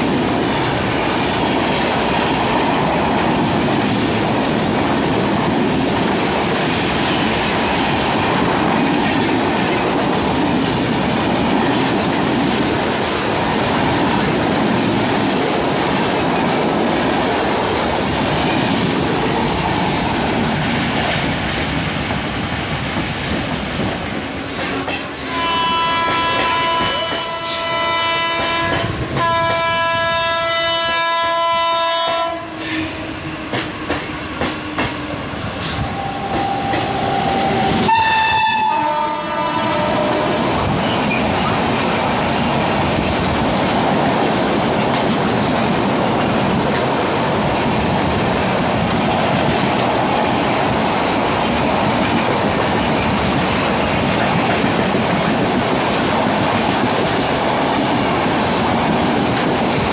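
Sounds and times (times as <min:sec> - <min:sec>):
train coaches rumbling past: 0:00.0 - 0:59.9
train horn blasts: 0:24.9 - 0:33.5, 0:35.8 - 0:40.6.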